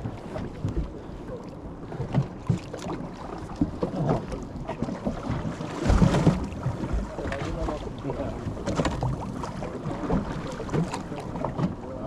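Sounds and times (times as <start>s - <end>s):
fishing boat rumbling: 0.0s - 12.0s.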